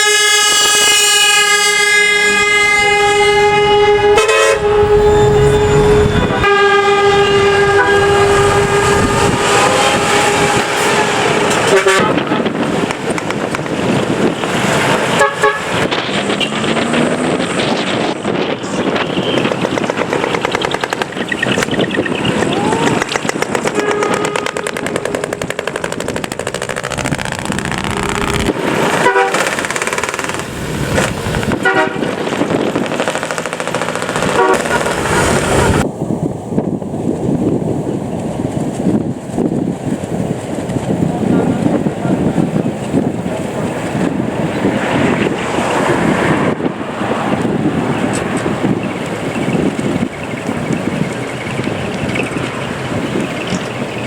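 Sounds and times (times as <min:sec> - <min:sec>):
short horn toots: 0:00.0 - 0:12.2
truck engines running loudly: 0:07.3 - 0:54.0.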